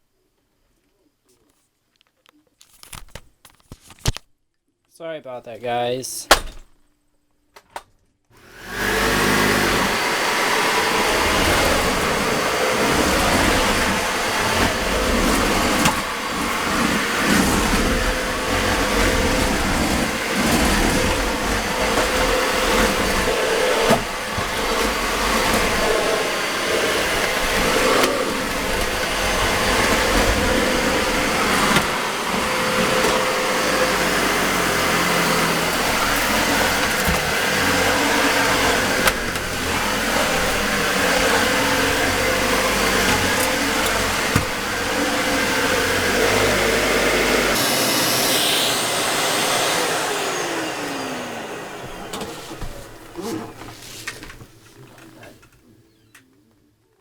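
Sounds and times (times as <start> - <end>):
vacuum cleaner running: 8.4 - 55.5.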